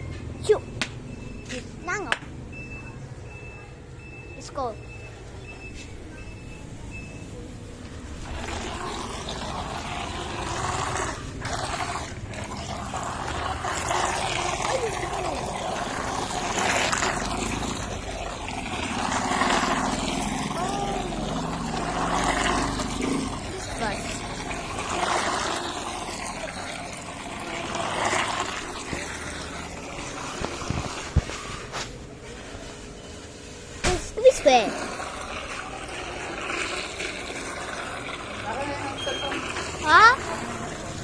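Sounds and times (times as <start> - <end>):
toy boat rushing through water: 8.0 - 31.2, 34.2 - 41.0.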